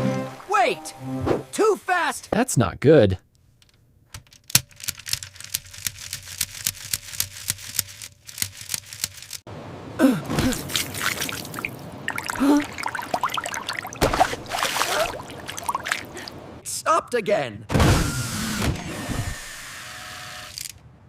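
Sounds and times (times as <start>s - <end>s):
sharp plastic clicks: 3.6s - 9.4s
water gurgling and splashing: 10.4s - 16.6s
water pump running: 11.0s - 16.3s.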